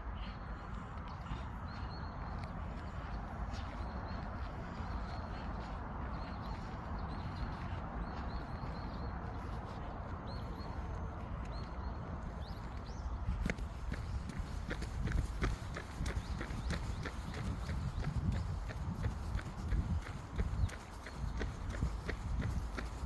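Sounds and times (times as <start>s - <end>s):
small birds chirping: 0.2s - 23.0s
wind on microphone: 12.0s - 23.0s.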